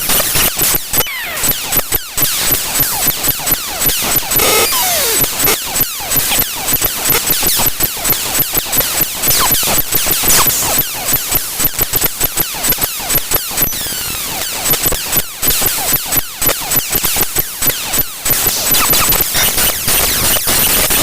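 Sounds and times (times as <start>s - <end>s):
harsh digital hiss: 3.9s - 16.0s, 16.7s - 21.0s
falling chirps: 4.4s - 5.4s.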